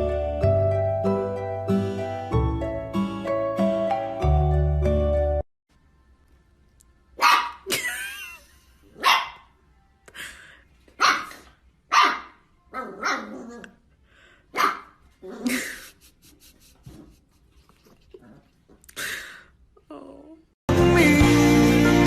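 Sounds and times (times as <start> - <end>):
dog barking: 7.2 - 7.7, 9.0 - 9.5, 11.0 - 13.4, 14.5 - 15.0.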